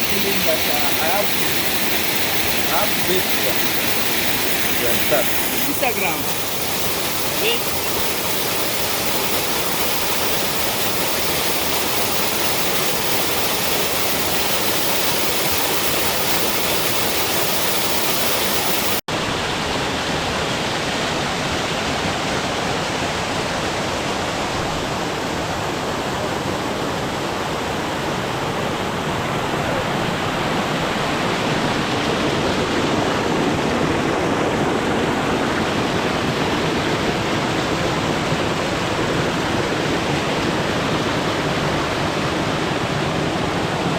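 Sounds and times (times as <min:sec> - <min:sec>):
waterfall rushing: 0:00.0 - 0:24.3.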